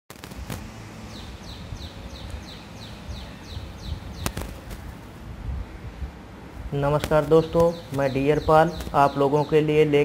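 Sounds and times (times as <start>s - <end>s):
bird chirping: 0.9s - 5.2s, 6.8s - 10.0s
sharp clicks: 4.2s - 4.8s.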